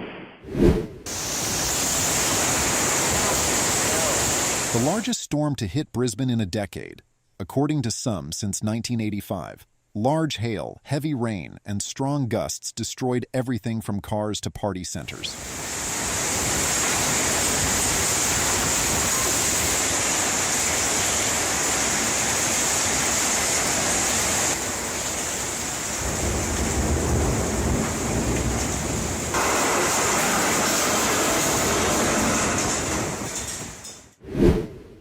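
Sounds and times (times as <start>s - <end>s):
heavy rain hissing: 1.1s - 5.1s, 15.3s - 33.8s.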